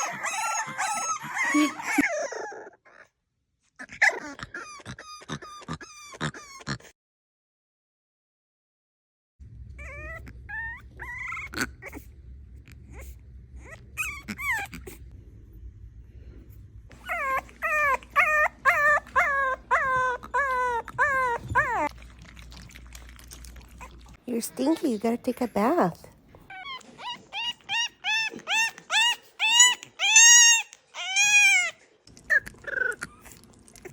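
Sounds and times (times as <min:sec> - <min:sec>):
puppy yelping: 0:00.0 - 0:03.1, 0:03.8 - 0:06.9, 0:09.8 - 0:12.1, 0:12.8 - 0:15.0, 0:17.0 - 0:22.0, 0:26.5 - 0:33.9
puppy whining: 0:00.0 - 0:07.0, 0:09.7 - 0:15.1, 0:16.9 - 0:24.2, 0:25.4 - 0:33.9.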